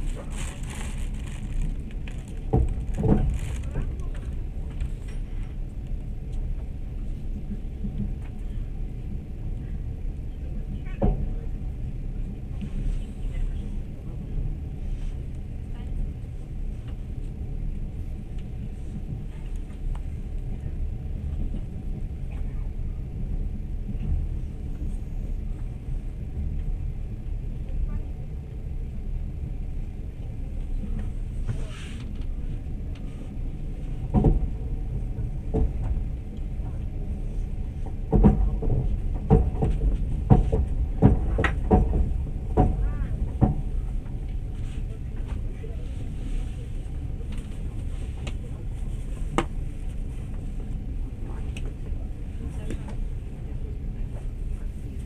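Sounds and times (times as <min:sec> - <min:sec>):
train carriage rumbling: 0:00.0 - 0:55.0
wheels clacking on track: 0:34.0 - 0:44.6.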